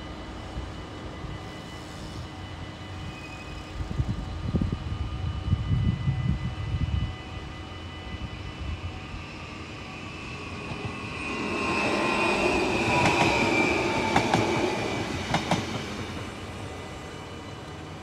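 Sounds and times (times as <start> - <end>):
train wheels rushing on rails: 0.0 - 18.0
high whine: 5.4 - 17.6.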